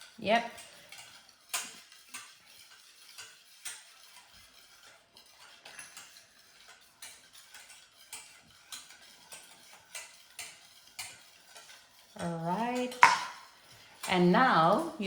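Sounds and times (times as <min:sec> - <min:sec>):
utensil tapping mixing bowl: 0:07.0 - 0:15.0.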